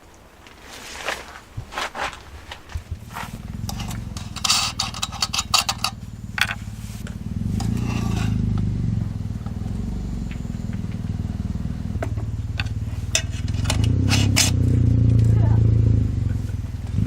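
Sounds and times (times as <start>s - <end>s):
gear clattering and scraping: 0.5s - 9.7s, 12.4s - 15.5s
vehicle engine running: 2.1s - 17.0s.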